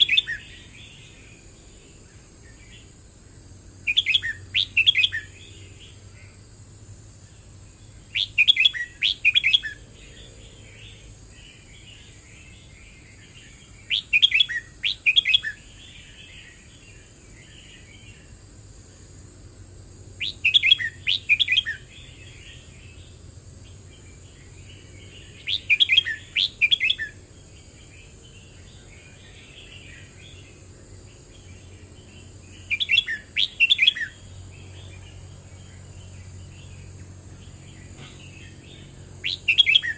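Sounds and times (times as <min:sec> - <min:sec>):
soft bird chattering: 0:03.9 - 0:05.4, 0:25.4 - 0:27.2.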